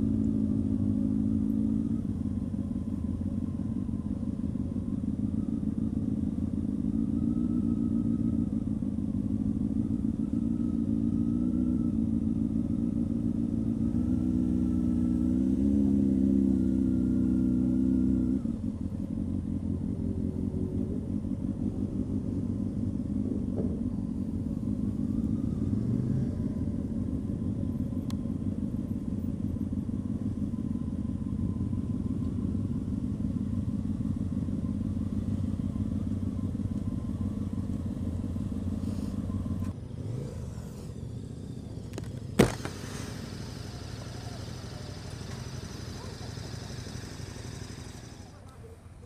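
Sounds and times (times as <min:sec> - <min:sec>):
motorcycle engine at low revs: 0:00.0 - 0:49.0.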